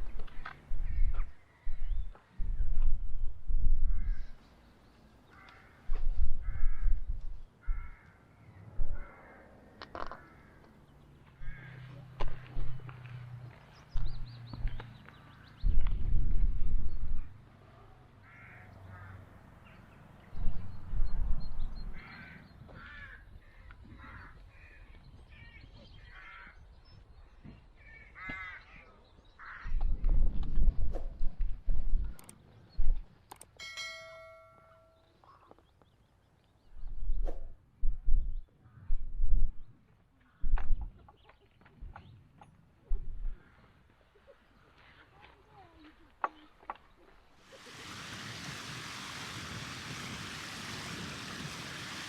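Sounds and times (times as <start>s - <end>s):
wind buffeting microphone: 0.0s - 4.4s, 5.8s - 8.0s, 13.9s - 17.4s, 20.3s - 25.4s, 29.6s - 33.1s, 36.7s - 39.8s, 47.8s - 52.0s
crow cawing: 5.3s - 7.0s, 7.6s - 8.2s, 9.0s - 10.7s, 11.4s - 12.5s, 18.2s - 19.2s, 22.0s - 24.8s, 26.1s - 26.6s, 27.9s - 28.8s, 29.4s - 29.8s.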